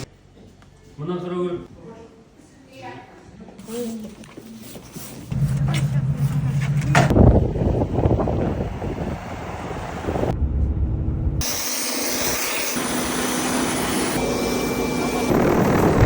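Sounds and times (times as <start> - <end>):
high whining tones: 5.3 - 16.0
helicopter turbine and rotor: 11.4 - 16.0.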